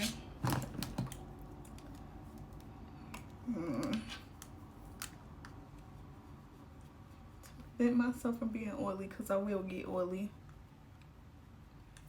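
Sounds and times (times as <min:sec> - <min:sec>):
person humming: 0:03.4 - 0:04.2.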